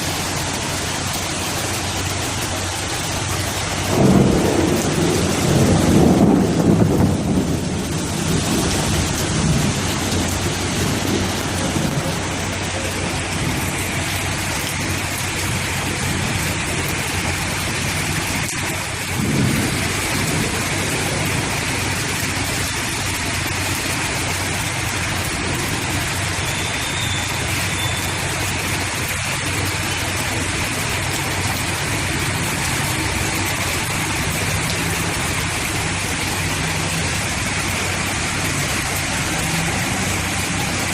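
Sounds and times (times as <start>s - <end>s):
heavy rain pouring: 0.0s - 40.9s
low rumble of thunder: 0.2s - 26.4s.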